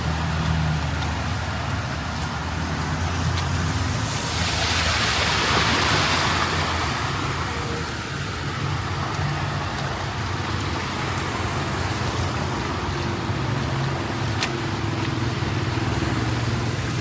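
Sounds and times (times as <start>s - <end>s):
vehicle engines running: 0.0s - 17.0s
water hissing under tyres: 0.1s - 12.9s.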